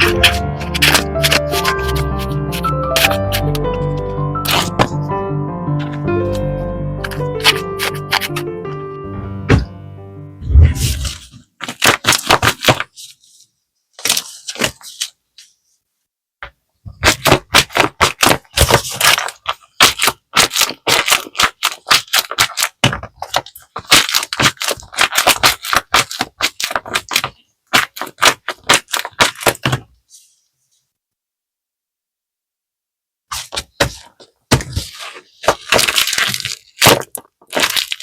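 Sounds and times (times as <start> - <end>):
paper crackling and crinkling: 0.0 - 5.0, 7.0 - 8.4, 10.7 - 15.7, 17.0 - 30.4, 33.3 - 38.0.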